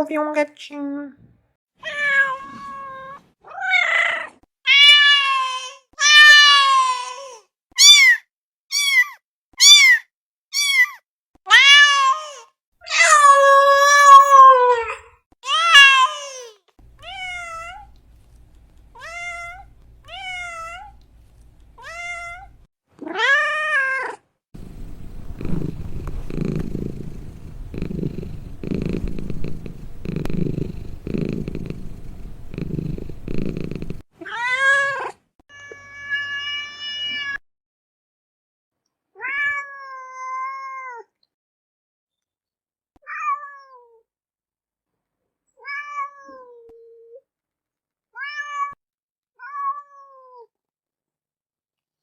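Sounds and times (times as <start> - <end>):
cats meowing: 1.8 - 7.2, 17.0 - 18.0, 18.9 - 21.0, 21.8 - 24.1
cat purring: 24.6 - 34.1.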